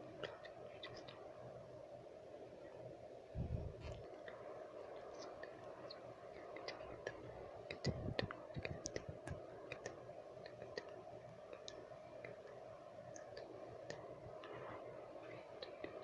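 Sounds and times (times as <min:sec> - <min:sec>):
steady background noise: 0:00.0 - 0:16.0
tongue clicks and lip smacks: 0:05.0 - 0:12.5.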